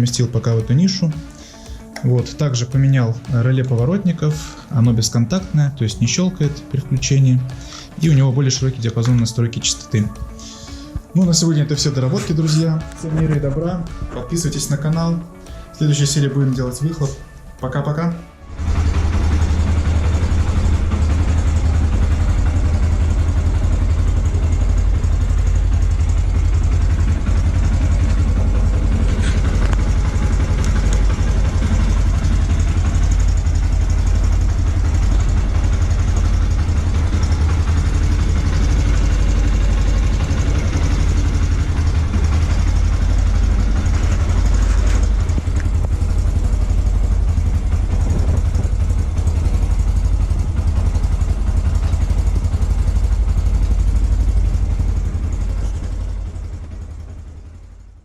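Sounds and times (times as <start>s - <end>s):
motorcycle engine idling: 0.0s - 17.8s, 18.4s - 58.0s.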